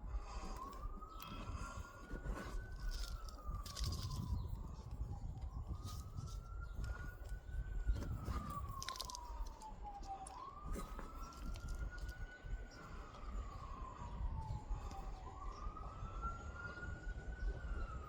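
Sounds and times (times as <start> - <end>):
siren wailing: 0.0 - 18.0
small clicks and crunches: 0.3 - 13.4.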